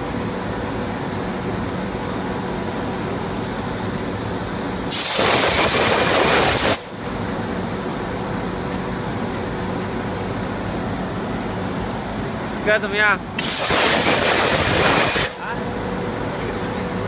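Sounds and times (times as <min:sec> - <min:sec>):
plasma cutter hiss and hum: 0:03.4 - 0:10.0, 0:11.9 - 0:15.6
loud hiss burst: 0:03.5 - 0:06.9, 0:13.4 - 0:15.4.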